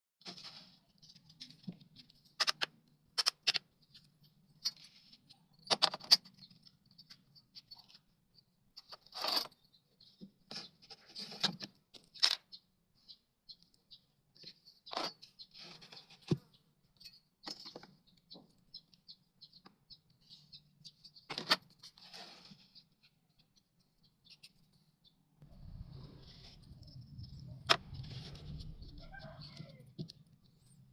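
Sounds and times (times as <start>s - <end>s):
faint low hum: 25.4s - 30.9s.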